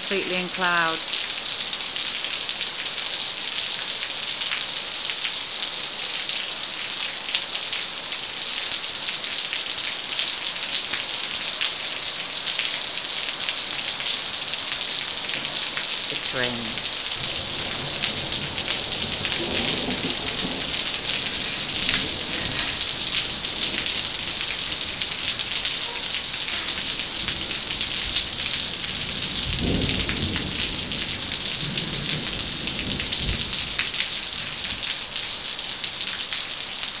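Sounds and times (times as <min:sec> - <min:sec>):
rain hissing: 0:00.0 - 0:37.0
thunder rumbling: 0:15.3 - 0:33.8.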